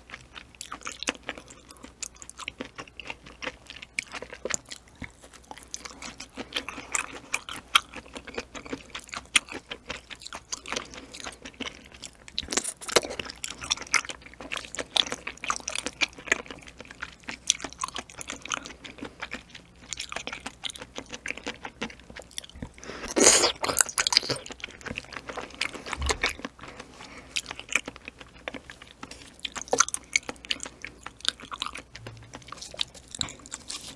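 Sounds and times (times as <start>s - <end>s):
wet chewing with mouth clicks: 0.0s - 33.9s.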